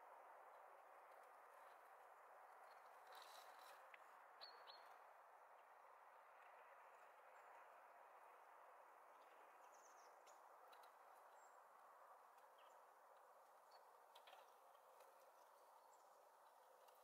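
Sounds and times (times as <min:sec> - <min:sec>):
songbirds chirping: 0:00.0 - 0:17.0
light ticks: 0:02.7 - 0:04.1, 0:10.2 - 0:11.4, 0:16.4 - 0:17.0.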